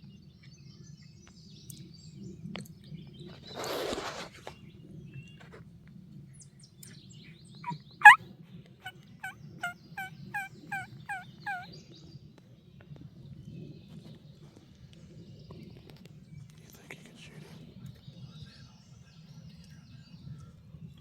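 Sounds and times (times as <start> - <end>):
wild turkey yelping: 7.6 - 8.2, 8.8 - 11.7.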